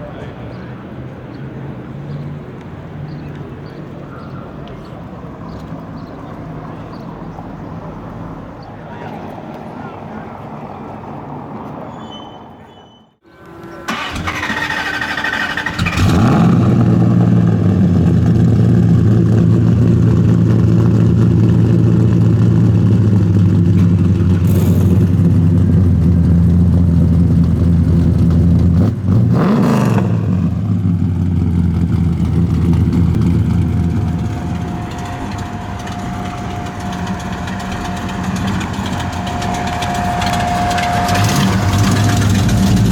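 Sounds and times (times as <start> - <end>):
starter motor cranking: 13.9 - 16.4
engine idling loudly: 13.9 - 28.7, 30.6 - 42.9.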